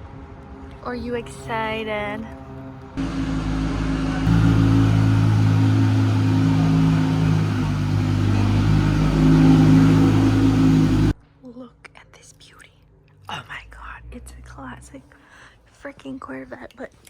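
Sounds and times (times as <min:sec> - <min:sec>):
vehicle engine droning: 0:02.3 - 0:11.2.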